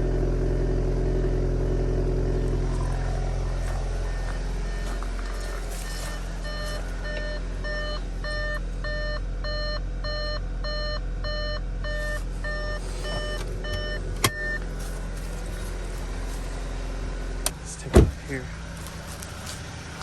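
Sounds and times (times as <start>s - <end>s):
car engine idling: 0.0s - 20.0s
car warning chime beeping: 2.2s - 16.3s.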